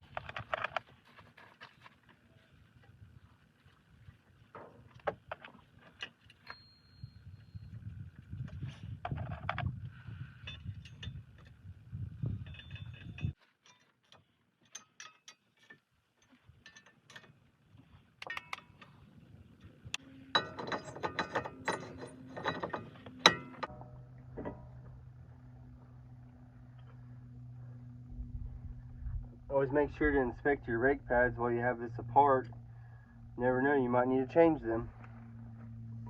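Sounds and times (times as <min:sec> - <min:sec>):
low steady hum: 0:00.0 - 0:36.0
hand tools clinking on metal: 0:12.4 - 0:17.4, 0:20.3 - 0:23.7.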